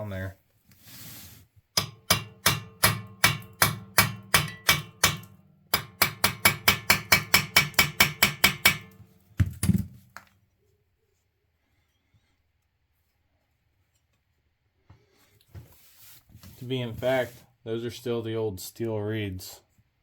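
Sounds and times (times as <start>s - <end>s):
dull heavy hammer blows: 1.8s - 9.0s
hammer striking metal: 1.8s - 9.0s.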